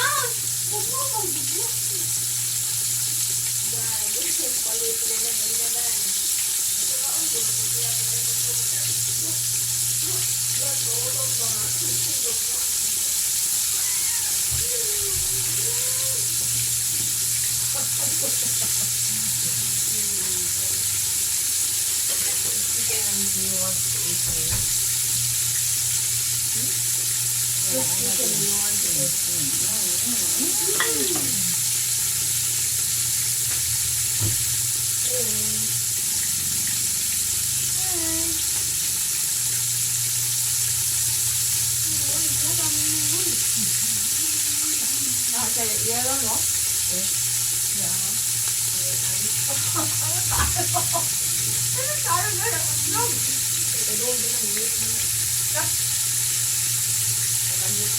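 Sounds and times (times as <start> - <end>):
oil sizzling: 0.0 - 57.9
faint voices: 3.6 - 17.0, 27.6 - 31.7
faint voice: 13.8 - 16.5.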